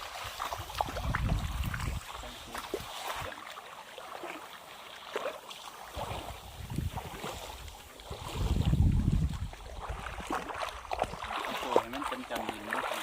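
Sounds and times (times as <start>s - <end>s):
wind rumble on microphone: 0.0s - 3.3s, 6.0s - 11.3s
shallow water sloshing and trickling: 0.0s - 13.0s
small water splashes: 0.0s - 13.0s.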